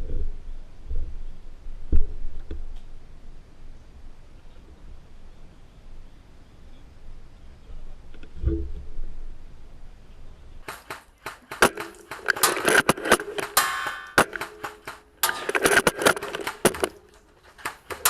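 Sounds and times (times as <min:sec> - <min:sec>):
airsoft gunfire: 0:10.7 - 0:18.0.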